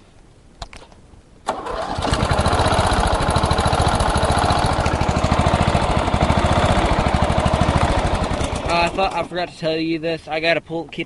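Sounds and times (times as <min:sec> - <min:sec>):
lawnmower engine running: 0:01.5 - 0:09.3.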